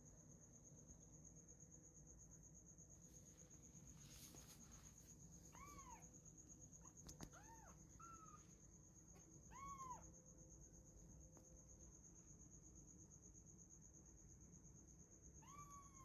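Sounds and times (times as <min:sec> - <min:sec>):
kitten meowing faintly: 0:05.5 - 0:06.1, 0:06.8 - 0:08.4, 0:09.4 - 0:10.1, 0:15.4 - 0:16.0.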